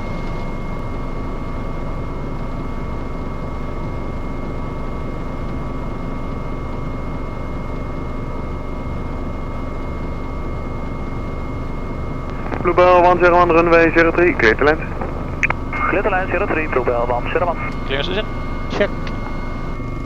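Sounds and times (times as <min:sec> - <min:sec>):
helicopter engine and rotor drone: 0:00.0 - 0:20.0
high-pitched whine: 0:11.4 - 0:20.0.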